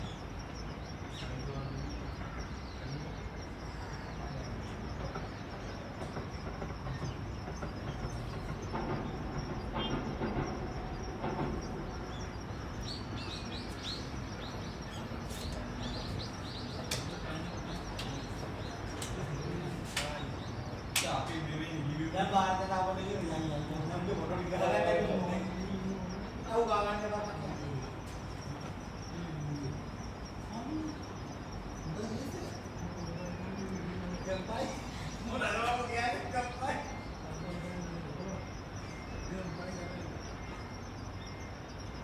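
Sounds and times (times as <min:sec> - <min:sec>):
bird chirping: 0:00.0 - 0:42.0
train rumbling on rails: 0:00.0 - 0:42.0
sharp rail clicks: 0:14.1 - 0:21.5.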